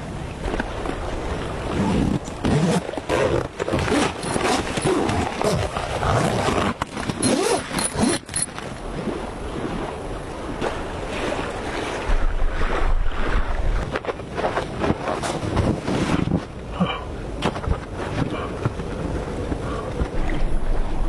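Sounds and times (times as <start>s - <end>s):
flowing river water: 0.0s - 21.0s
wind buffeting microphone: 7.3s - 21.0s.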